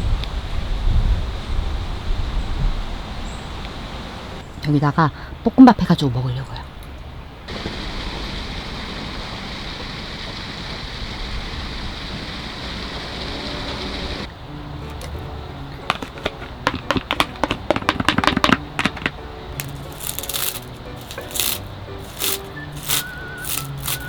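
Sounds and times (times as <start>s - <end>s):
soft background music: 14.3s - 24.0s
spatula scraping a pan: 14.8s - 15.2s
food sizzling in a pan: 19.6s - 24.0s.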